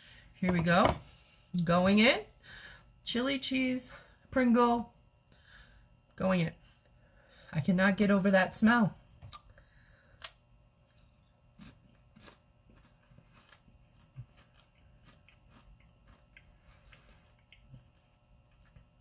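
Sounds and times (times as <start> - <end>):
person crunching a potato crisp: 10.2 - 19.0.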